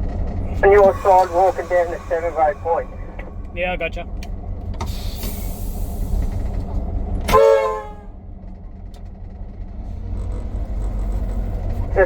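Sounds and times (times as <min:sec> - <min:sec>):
diesel engine idling: 0:00.0 - 0:12.0
locomotive horn toot: 0:07.2 - 0:08.2.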